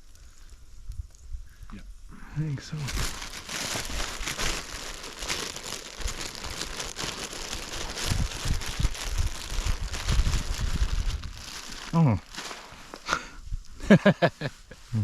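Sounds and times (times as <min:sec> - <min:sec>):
crinkling and rustling: 0:02.6 - 0:13.1.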